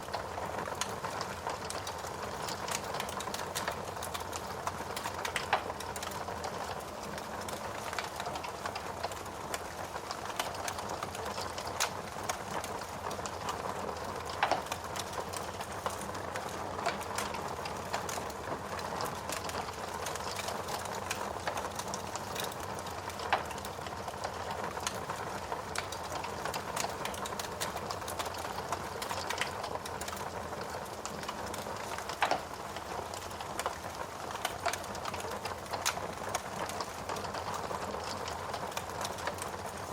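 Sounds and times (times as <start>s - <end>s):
logs popping and snapping: 32.0s - 32.5s.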